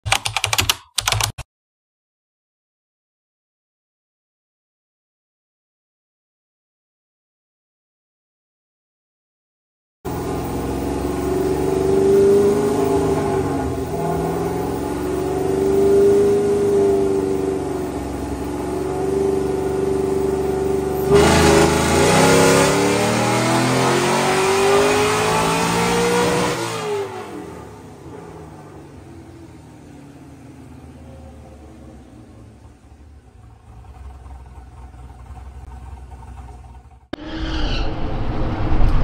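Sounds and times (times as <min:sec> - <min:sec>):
car engine revving on a dyno: 0:10.1 - 0:28.4.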